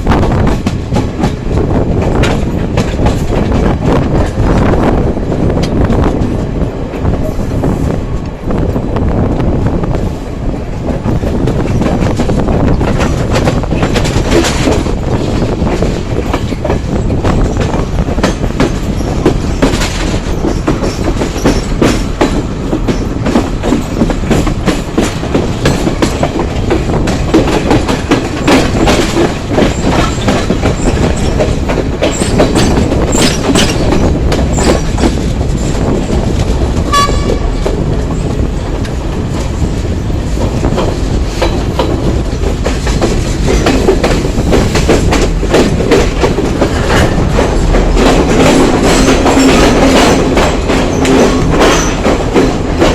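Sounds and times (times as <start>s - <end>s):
train rumbling on rails: 0.0s - 52.9s
wheels clattering over rail joints: 10.9s - 52.9s.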